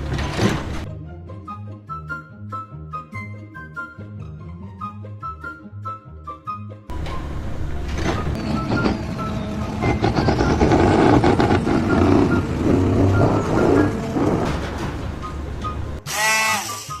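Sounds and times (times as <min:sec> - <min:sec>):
heavy truck engine running: 0:06.9 - 0:16.0.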